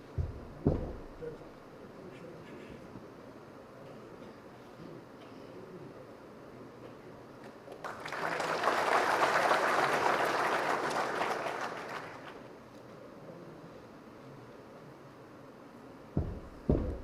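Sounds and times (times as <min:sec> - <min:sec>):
audience clapping: 0:07.7 - 0:12.5.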